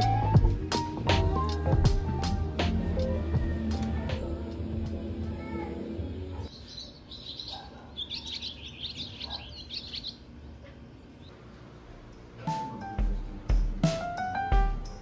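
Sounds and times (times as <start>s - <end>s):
small bird twittering: 6.5s - 11.3s.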